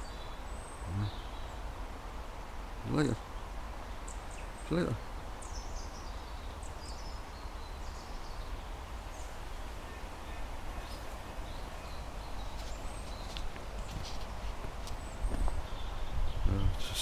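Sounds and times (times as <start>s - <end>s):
small birds chirping: 0.0s - 1.7s, 2.8s - 17.0s
wind rumble on microphone: 13.6s - 17.0s.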